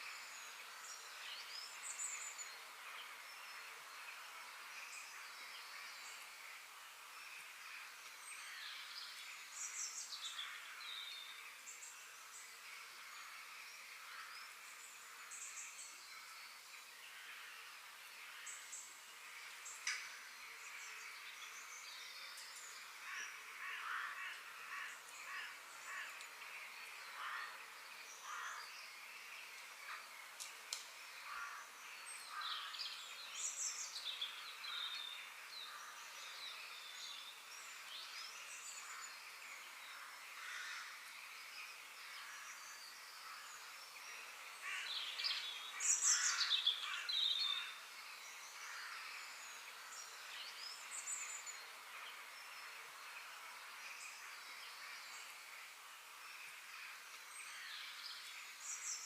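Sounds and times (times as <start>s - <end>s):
faint background hiss: 0.0s - 59.0s
birds chirping and calling: 44.6s - 51.6s.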